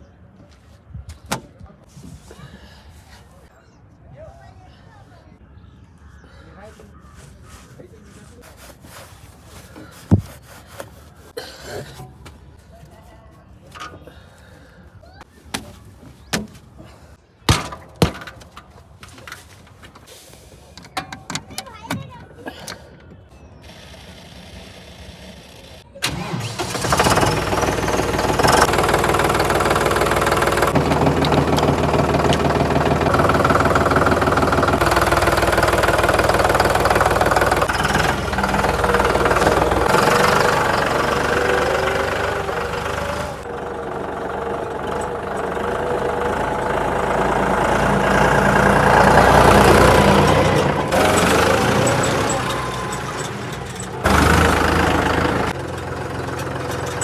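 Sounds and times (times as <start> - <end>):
heavy diesel engine revving: 26.0 - 57.0.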